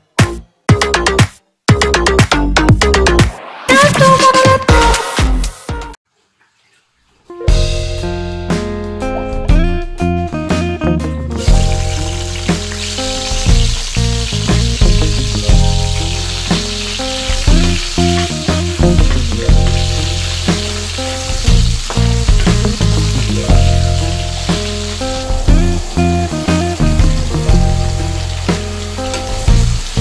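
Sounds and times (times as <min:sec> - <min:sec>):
background music: 0:00.0 - 0:06.0, 0:07.3 - 0:30.0
onion sizzling in oil: 0:11.4 - 0:30.0.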